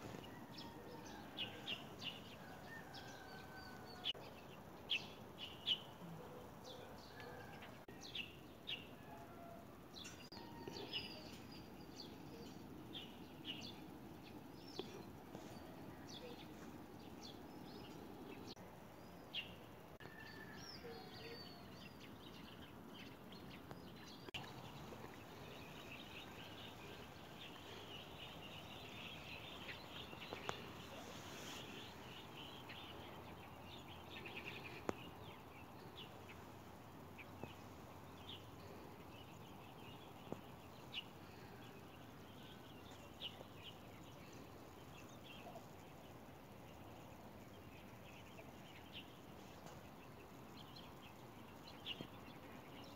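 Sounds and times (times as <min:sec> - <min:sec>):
faint outdoor hiss: 0:00.0 - 0:52.9
small birds chirping: 0:20.8 - 0:52.9.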